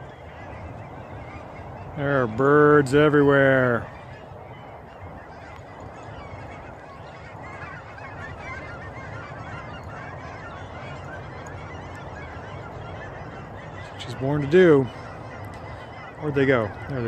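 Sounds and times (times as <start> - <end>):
flock of waterfowl calling: 0.0 - 17.0.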